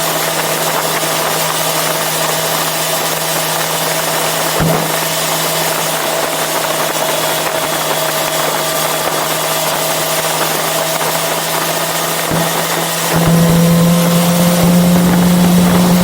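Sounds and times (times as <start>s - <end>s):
motorcycle engine running: 0.0s - 16.0s
low thump: 4.6s - 5.1s.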